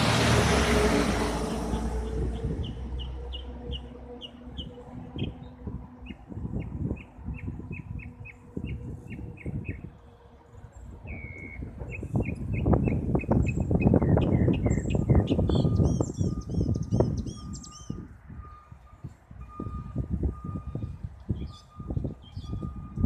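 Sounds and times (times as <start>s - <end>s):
airplane drone: 0.0s - 12.3s
birds calling: 11.1s - 18.0s.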